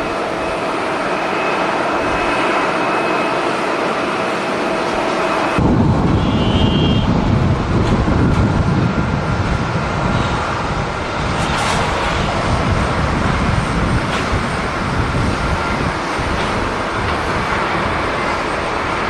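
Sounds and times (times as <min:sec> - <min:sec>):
jet engine rumble: 0:00.0 - 0:19.0
wind on microphone: 0:04.8 - 0:19.0.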